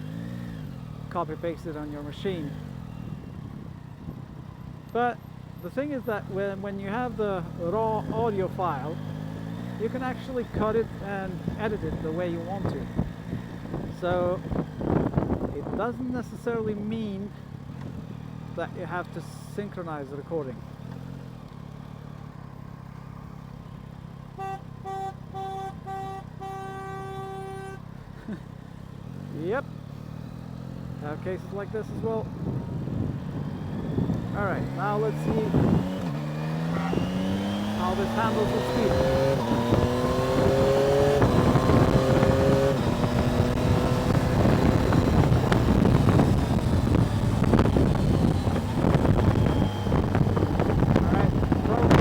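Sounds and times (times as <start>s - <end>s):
engine and road rumble: 0.0s - 52.0s
wind buffeting microphone: 12.8s - 15.8s, 32.2s - 37.8s, 38.6s - 52.0s
vehicle horn honking: 24.3s - 28.0s.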